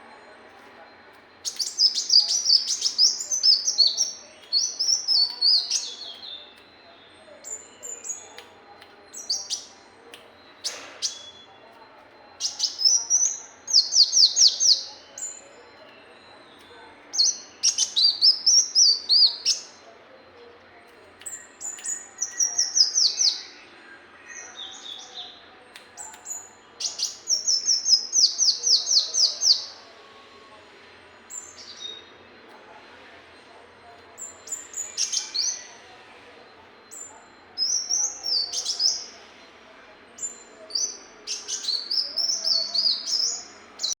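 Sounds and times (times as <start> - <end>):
sunbird singing rapid trills: 1.4 - 8.4, 12.4 - 15.5, 16.1 - 19.8, 21.2 - 25.4, 26.0 - 29.8, 34.2 - 35.8, 36.8 - 39.6, 40.2 - 44.0.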